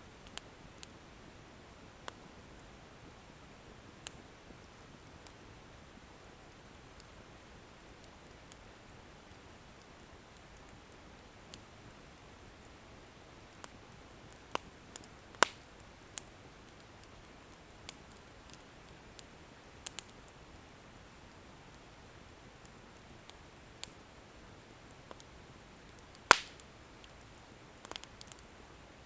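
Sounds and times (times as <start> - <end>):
firewood crackling and popping: 0.1 - 1.2, 3.4 - 28.6
wood fire hissing: 12.5 - 28.6.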